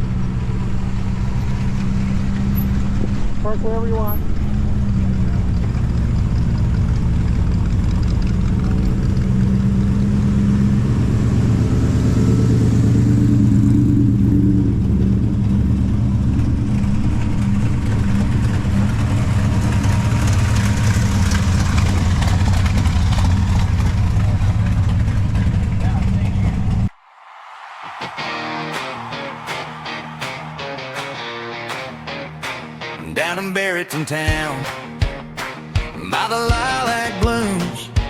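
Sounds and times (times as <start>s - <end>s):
car engine running: 0.0s - 26.9s.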